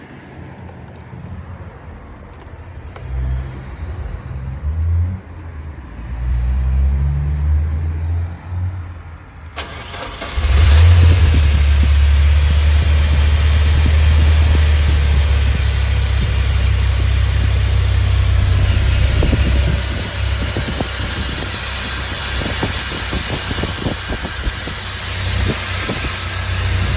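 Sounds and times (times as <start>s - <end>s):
short high beep: 2.4s - 3.7s
engine cranking and idling: 9.4s - 26.9s
uneven low rumbling: 10.3s - 26.9s.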